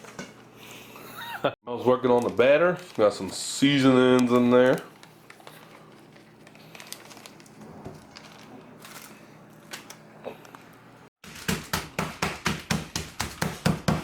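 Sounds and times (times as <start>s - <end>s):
meat being pounded: 11.2s - 14.0s.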